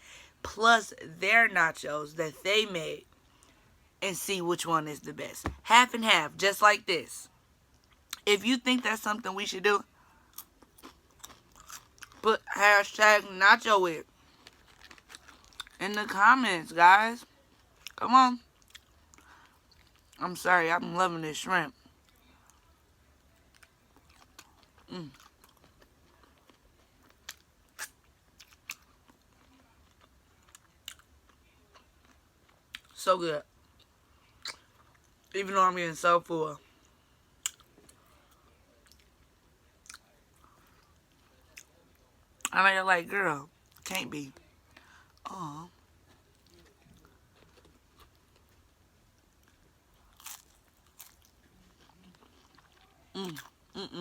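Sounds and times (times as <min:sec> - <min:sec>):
person chewing crunchy food: 0:10.3 - 0:12.2, 0:14.1 - 0:15.8, 0:18.6 - 0:20.2, 0:23.5 - 0:32.9, 0:46.0 - 0:54.0.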